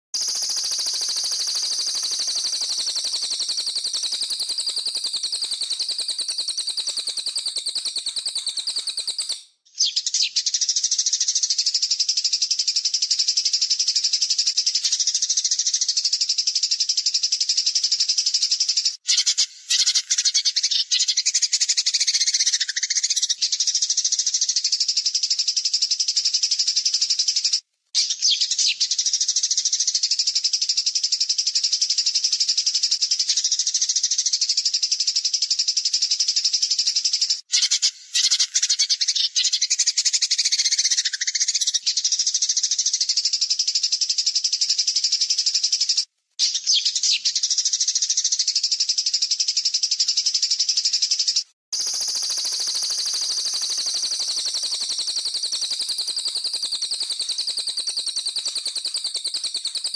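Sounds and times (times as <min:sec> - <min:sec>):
songbird harsh rattling notes: 0:00.2 - 0:09.4, 0:51.8 - 0:54.8.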